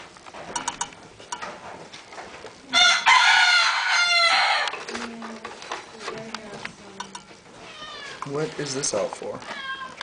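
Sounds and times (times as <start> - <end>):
kitten meowing: 9.5 - 10.0.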